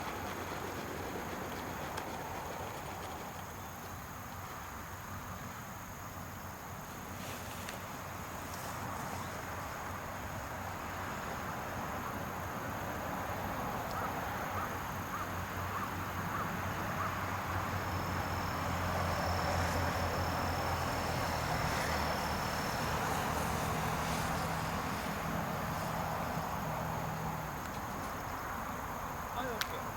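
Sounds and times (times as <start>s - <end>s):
tractor engine running: 0.0s - 4.4s
insects chirping: 0.0s - 29.9s
thin high buzz: 17.2s - 26.8s.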